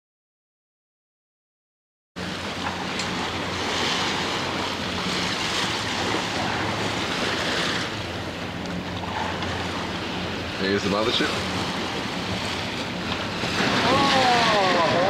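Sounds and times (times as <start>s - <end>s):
motorboat engine drone: 2.2s - 15.0s
rushing wind and water: 2.2s - 15.0s.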